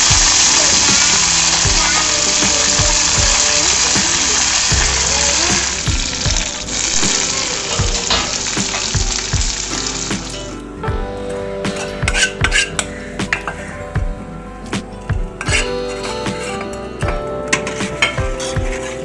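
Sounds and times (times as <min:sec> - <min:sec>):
food sizzling in oil: 0:00.0 - 0:10.6
background music: 0:00.0 - 0:19.0.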